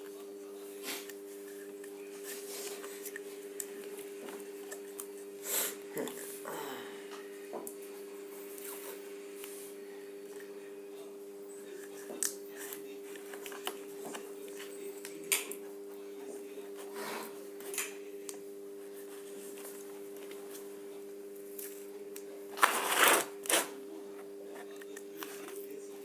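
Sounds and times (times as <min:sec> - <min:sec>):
paper tape clicking and rustling: 0:22.6 - 0:23.8
tape crinkling and tearing: 0:22.6 - 0:23.8.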